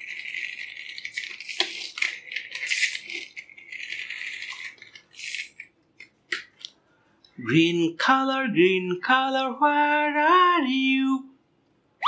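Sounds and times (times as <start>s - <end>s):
toy motorcycle rattling: 0.0s - 6.7s.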